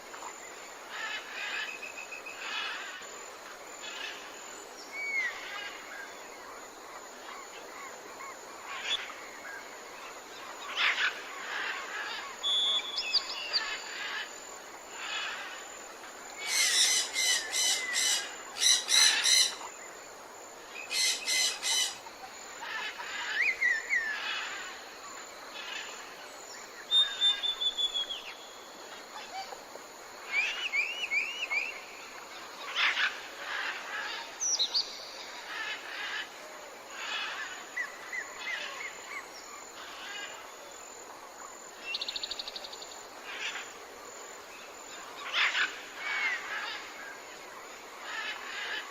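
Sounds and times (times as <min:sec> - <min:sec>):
faint steady hiss: 0:00.0 - 0:48.9
sweeping bird whistles: 0:26.9 - 0:28.3.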